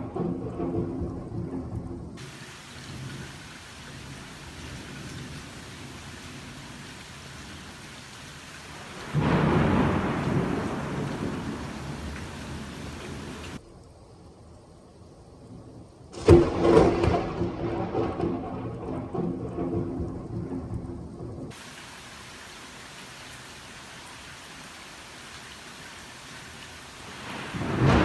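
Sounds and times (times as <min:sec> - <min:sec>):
low thunder rumble: 0:00.0 - 0:13.6, 0:16.2 - 0:28.0
loud thunderclap: 0:02.2 - 0:13.6, 0:26.8 - 0:28.0
steady rain hiss: 0:02.2 - 0:16.2, 0:21.5 - 0:28.0.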